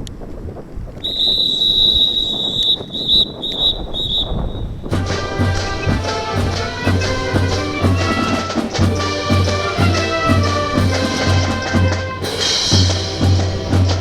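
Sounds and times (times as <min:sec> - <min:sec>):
bass drum beat: 0:04.9 - 0:14.0
brass band playing a march: 0:04.9 - 0:14.0.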